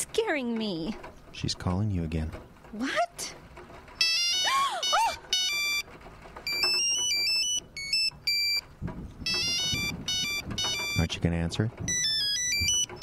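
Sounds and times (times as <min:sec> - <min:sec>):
phone ringtone beeping melody: 0:04.0 - 0:05.9, 0:06.5 - 0:08.6, 0:09.2 - 0:11.2, 0:11.9 - 0:13.0.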